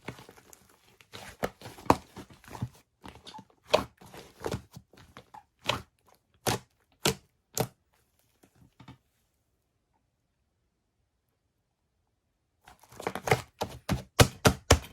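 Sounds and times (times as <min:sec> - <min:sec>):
bread crunching: 0:00.0 - 0:07.7.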